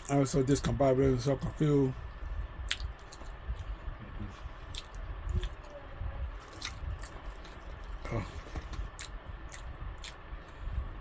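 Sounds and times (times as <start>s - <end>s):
person chewing fried chicken: 2.1s - 11.0s
mouth clicks and smacks: 2.6s - 3.8s.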